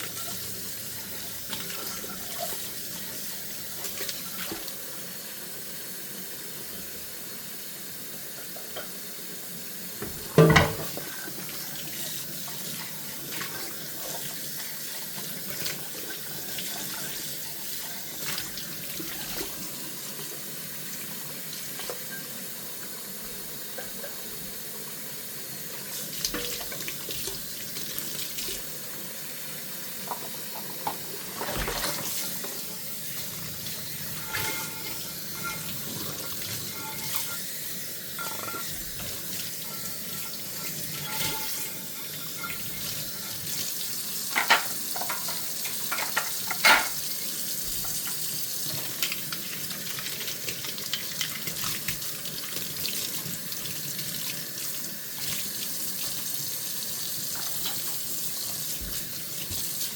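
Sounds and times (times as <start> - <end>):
tap water running into sink: 0.0 - 59.9
dishes clinking and knocking: 10.0 - 11.2, 34.1 - 37.4, 38.2 - 43.4, 44.3 - 47.0.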